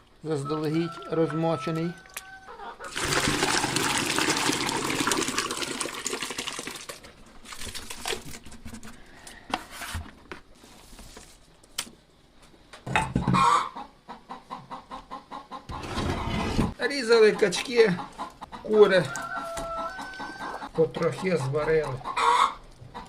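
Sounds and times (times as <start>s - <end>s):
chickens clucking: 0.3s - 3.0s, 13.1s - 23.0s
wet mash sloshing when stirred: 0.5s - 9.0s.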